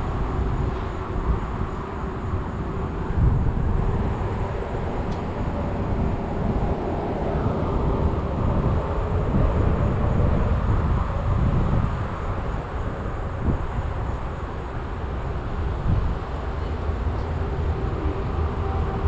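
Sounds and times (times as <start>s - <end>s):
small click: 5.1s - 5.3s.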